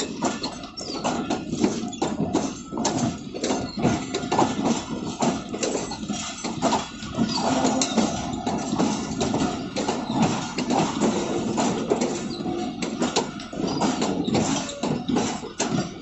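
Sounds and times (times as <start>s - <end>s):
train wheels clattering over rails: 0.0s - 16.0s.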